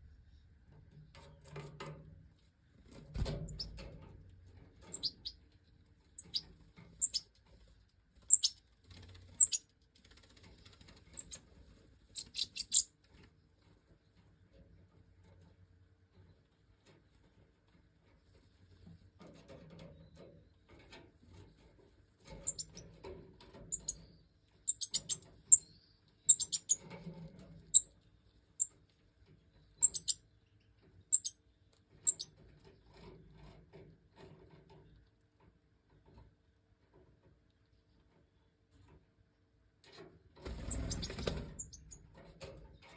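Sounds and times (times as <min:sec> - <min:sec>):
goldfinches chirping: 0:04.9 - 0:05.4, 0:06.2 - 0:06.4, 0:07.0 - 0:07.2, 0:08.3 - 0:08.6, 0:09.4 - 0:09.6, 0:12.2 - 0:12.9, 0:22.5 - 0:22.8, 0:23.7 - 0:24.0, 0:24.7 - 0:25.7, 0:26.3 - 0:26.8, 0:29.8 - 0:30.2, 0:31.1 - 0:31.3, 0:32.1 - 0:32.3, 0:40.6 - 0:42.0.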